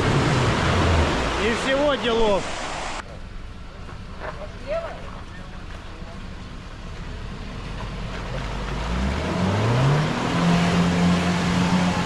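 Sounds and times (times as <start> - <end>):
engine revving with whine: 7.4 - 12.0.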